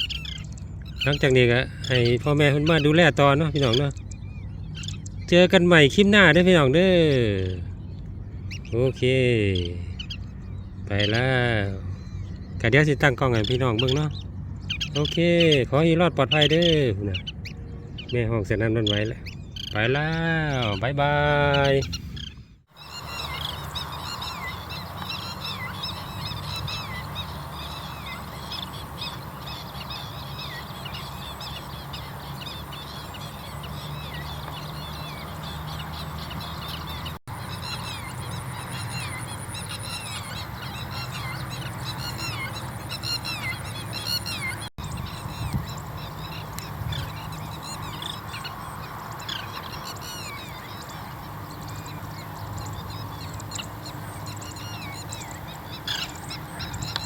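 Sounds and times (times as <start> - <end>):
birds calling in sharp notes: 0.0 - 57.0
steady low hum: 0.0 - 57.0.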